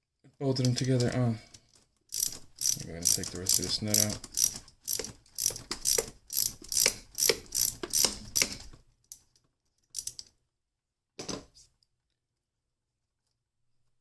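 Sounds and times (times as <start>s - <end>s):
socket ratchet clicking: 2.1s - 8.7s, 10.0s - 10.3s.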